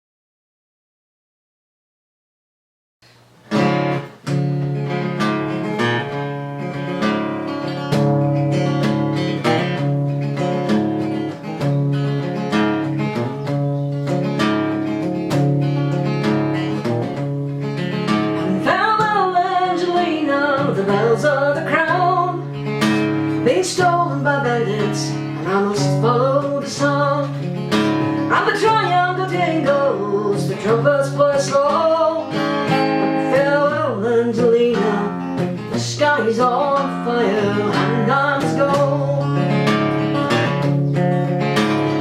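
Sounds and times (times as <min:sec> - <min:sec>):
acoustic guitar strumming: 0:03.1 - 0:42.0
person singing: 0:18.4 - 0:22.6, 0:23.4 - 0:39.6.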